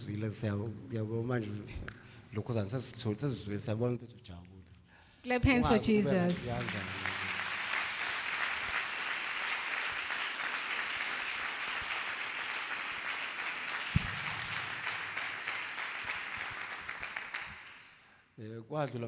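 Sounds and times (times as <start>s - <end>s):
congregation applauding: 5.9s - 18.1s
low thump: 14.0s - 14.7s.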